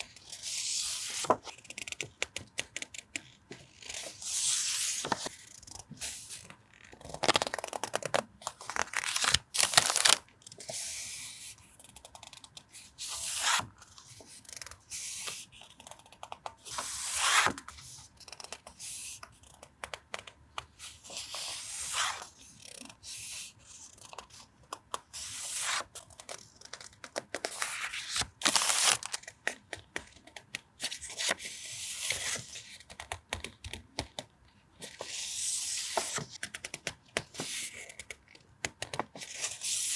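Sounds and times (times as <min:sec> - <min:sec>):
paper rustling and sliding: 0:00.4 - 0:01.5, 0:03.5 - 0:05.4, 0:08.6 - 0:11.5, 0:16.7 - 0:18.0, 0:27.5 - 0:29.3.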